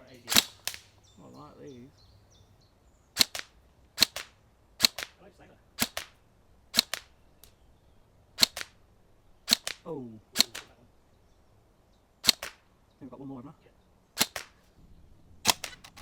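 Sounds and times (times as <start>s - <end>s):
airsoft rifle shots: 0.2s - 1.0s, 3.2s - 7.6s, 8.4s - 10.8s, 12.2s - 12.8s, 14.2s - 16.0s.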